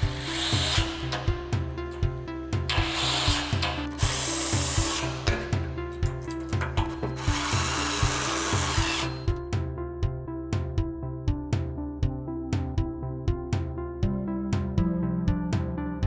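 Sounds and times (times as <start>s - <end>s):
background music with steady beat: 0.0s - 16.0s
cordless drill driving screws: 0.2s - 1.1s, 2.7s - 5.3s, 7.0s - 9.3s.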